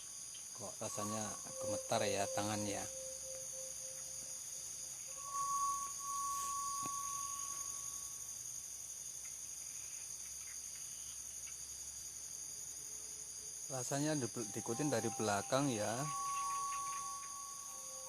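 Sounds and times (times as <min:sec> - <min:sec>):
crickets chirping: 0:00.0 - 0:18.0
thin steady tone: 0:00.0 - 0:18.0.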